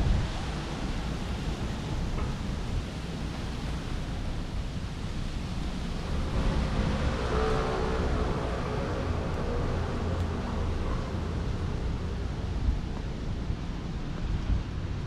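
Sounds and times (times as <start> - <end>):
traffic rumble: 0.0 - 15.0
wind on microphone: 0.0 - 15.0.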